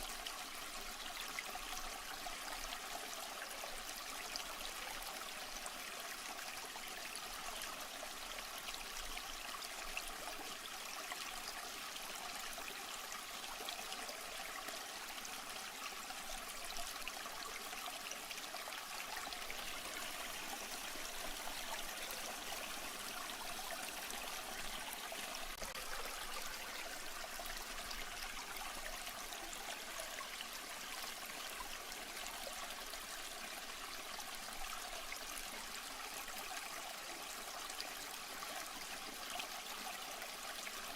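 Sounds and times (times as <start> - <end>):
water trickling: 16.4 - 32.0.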